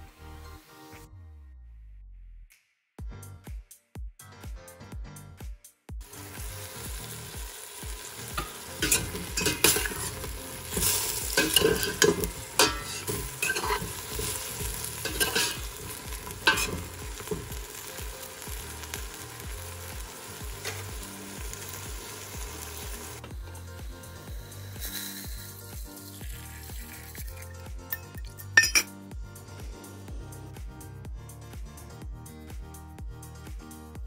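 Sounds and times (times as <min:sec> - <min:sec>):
vegetables sizzling in a pot: 0:06.0 - 0:28.9
metal spoon scraping a pot: 0:08.4 - 0:17.3.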